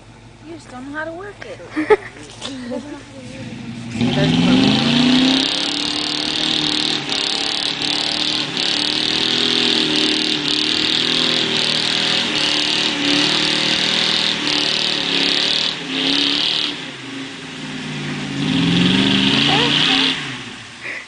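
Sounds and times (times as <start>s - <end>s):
truck engine revving high: 1.9s - 21.0s.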